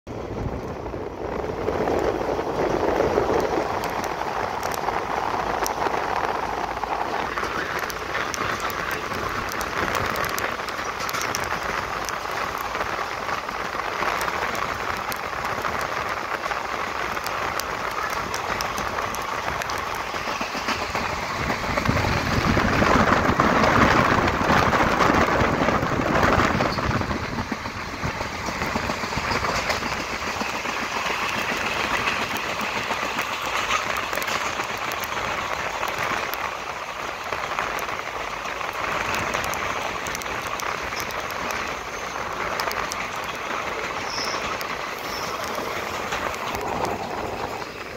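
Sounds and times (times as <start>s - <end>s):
train wheels rushing on rail: 0.1s - 47.9s.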